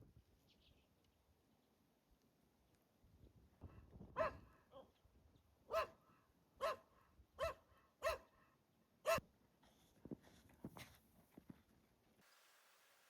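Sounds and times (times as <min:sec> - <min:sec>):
dog barking: 0:04.2 - 0:04.9, 0:05.7 - 0:06.0, 0:06.6 - 0:08.3, 0:09.0 - 0:09.2.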